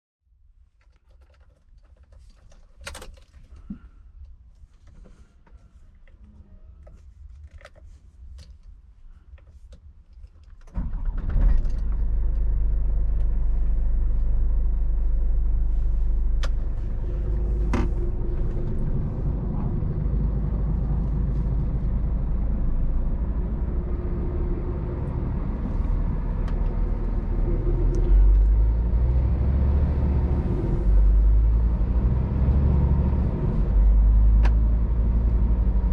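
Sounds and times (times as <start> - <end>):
truck diesel engine idling: 12.6 - 27.6.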